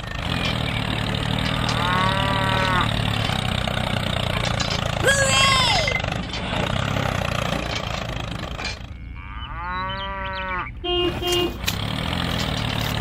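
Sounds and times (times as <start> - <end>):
low engine rumble: 0.0 - 13.0
cow mooing: 1.4 - 3.0, 8.9 - 11.0
short horn beeps: 10.8 - 11.7.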